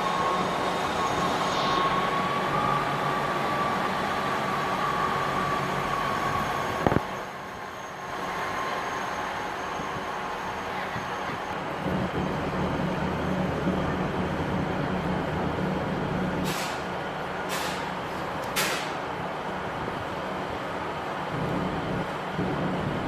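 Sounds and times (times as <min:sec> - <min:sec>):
diesel train engine droning: 0:00.0 - 0:23.0
air brake hisses: 0:16.4 - 0:16.9, 0:17.5 - 0:17.9.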